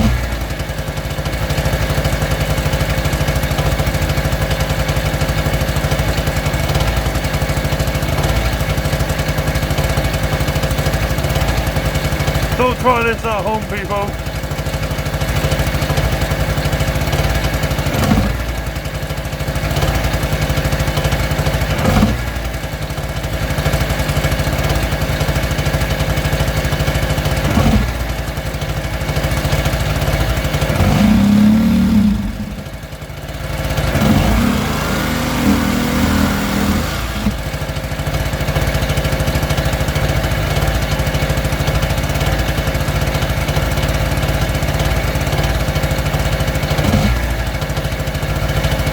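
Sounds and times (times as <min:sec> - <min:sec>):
small two-stroke engine running: 0:00.0 - 0:48.9.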